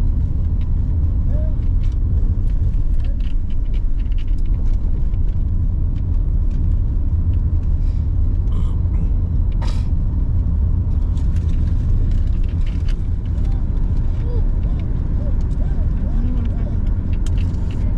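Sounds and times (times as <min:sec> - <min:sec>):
vehicle cabin rumble: 0:00.0 - 0:17.9.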